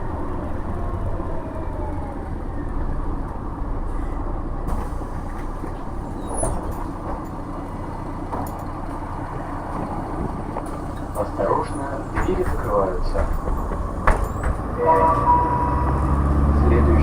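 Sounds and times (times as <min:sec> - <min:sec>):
bus cabin rumble: 0:00.0 - 0:17.0
short knocks: 0:12.1 - 0:14.8.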